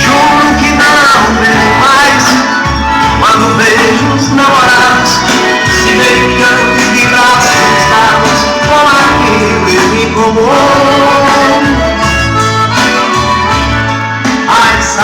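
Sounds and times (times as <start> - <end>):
latin music over car speakers: 0.0 - 15.0.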